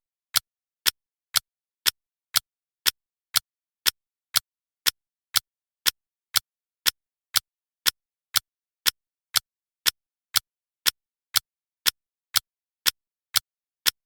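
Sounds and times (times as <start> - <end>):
clock ticking: 0.0 - 14.0.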